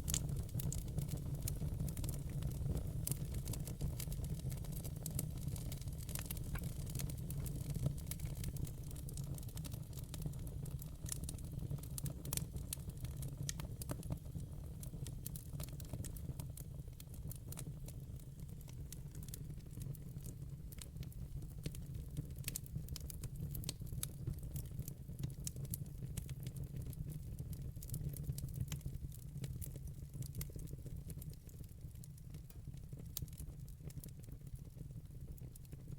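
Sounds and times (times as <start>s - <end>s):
logs crackling and popping: 0.0s - 10.0s
low rumble of flames: 0.0s - 26.4s.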